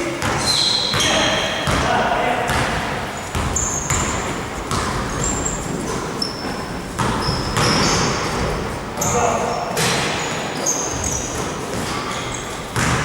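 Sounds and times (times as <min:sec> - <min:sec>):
sneakers squeaking on court: 0:00.0 - 0:13.0
basketball bouncing: 0:00.2 - 0:13.0.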